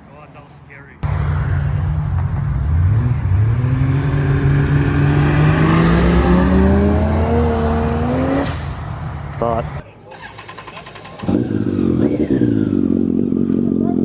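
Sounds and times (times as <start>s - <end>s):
car engine accelerating hard: 1.0s - 9.8s.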